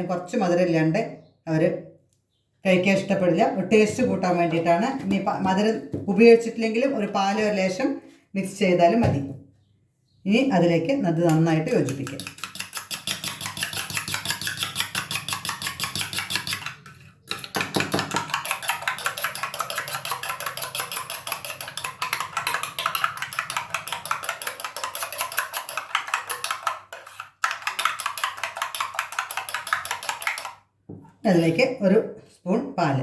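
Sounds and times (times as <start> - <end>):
utensil clinking against bowl: 11.3 - 30.6.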